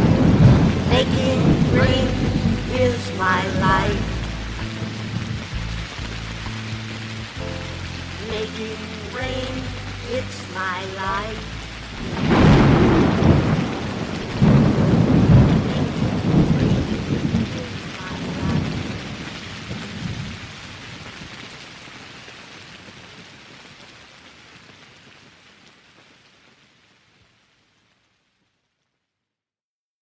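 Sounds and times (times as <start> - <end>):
thunder rumbling: 0.0 - 20.4
steady rain: 0.0 - 28.9.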